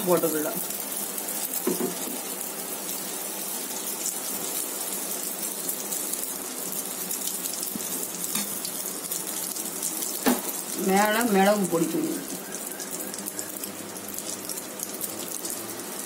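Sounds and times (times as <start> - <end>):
batter sizzling in hot oil: 0.0 - 16.0.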